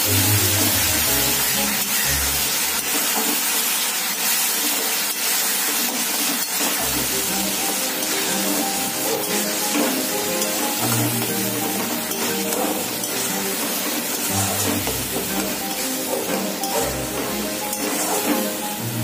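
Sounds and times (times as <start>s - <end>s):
soft background music: 0.0s - 2.8s, 6.8s - 19.0s
paste sizzling in hot oil: 0.0s - 19.0s
spatula stirring: 5.8s - 18.8s.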